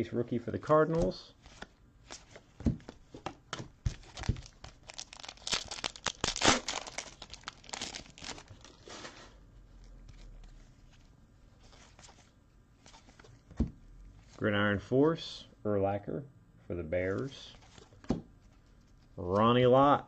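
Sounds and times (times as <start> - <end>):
foil wrapper crinkling and tearing: 3.9 - 9.3.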